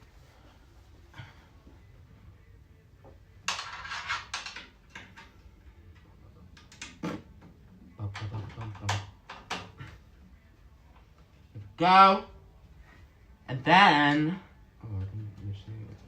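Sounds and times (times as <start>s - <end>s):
hard parts clicking and scraping: 3.4s - 5.4s.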